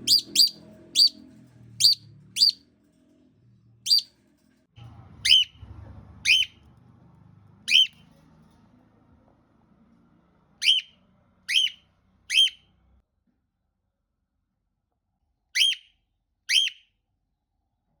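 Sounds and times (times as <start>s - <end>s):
parrot whistled calls: 0.0s - 1.2s, 1.8s - 2.6s, 3.9s - 4.1s, 5.2s - 5.6s, 6.2s - 6.6s, 7.7s - 8.0s, 10.6s - 12.7s, 15.6s - 15.9s, 16.5s - 16.8s.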